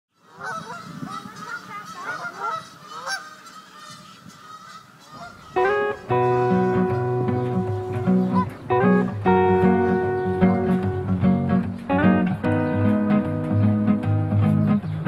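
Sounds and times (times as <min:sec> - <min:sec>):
geese honking: 0:00.2 - 0:12.0
music: 0:05.5 - 0:15.0
plucked guitar chord: 0:05.6 - 0:15.0.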